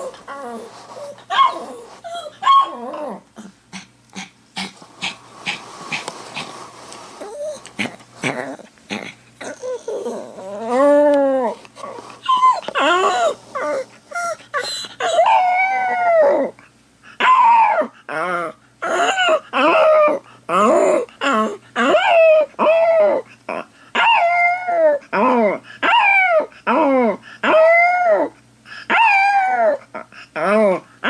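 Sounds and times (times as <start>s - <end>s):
dog howling: 0.0s - 3.2s, 9.4s - 16.6s, 17.2s - 30.8s
dog whimpering softly: 0.0s - 3.5s, 7.2s - 8.7s, 9.4s - 16.6s.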